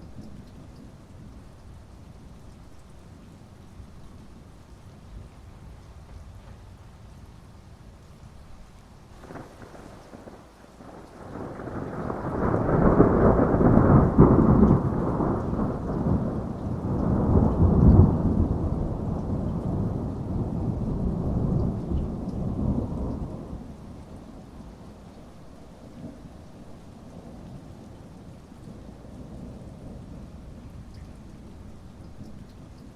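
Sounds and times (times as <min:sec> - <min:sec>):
steady rain: 0:00.0 - 0:32.9
rolling thunder rumble: 0:09.2 - 0:32.9.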